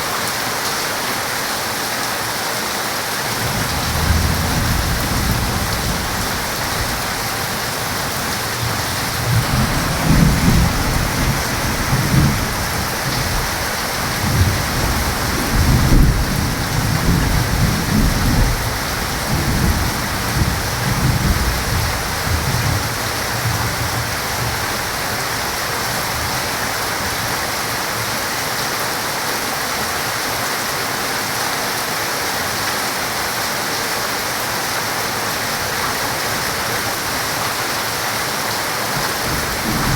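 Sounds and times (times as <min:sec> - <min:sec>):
heavy rain: 0:00.0 - 0:39.9
thunder rumbling: 0:03.4 - 0:26.5, 0:38.9 - 0:39.9.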